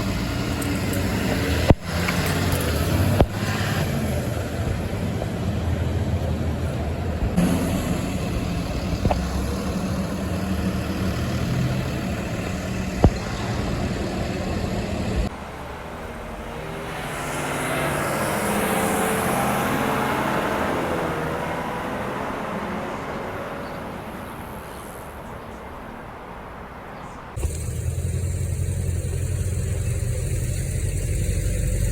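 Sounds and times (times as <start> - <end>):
engine running with low hum: 0.0 - 15.3, 27.4 - 31.9
vehicle passing by: 0.0 - 25.2.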